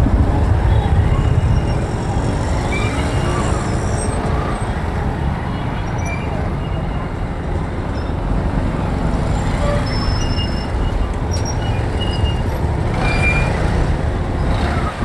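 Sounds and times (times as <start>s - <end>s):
motorbike road noise: 0.0s - 15.0s.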